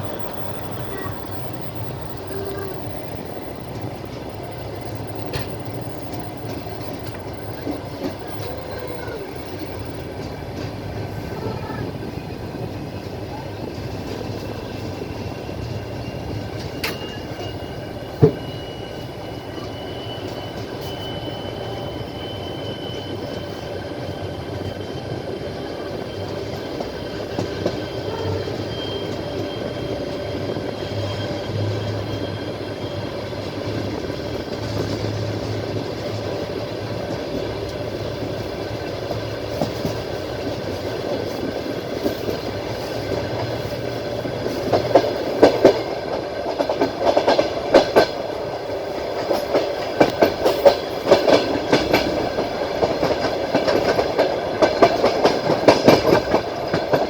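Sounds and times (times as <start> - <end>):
wheels clicking over rail joints: 0.0 - 18.5, 33.4 - 57.0
train rumbling on track: 0.0 - 57.0.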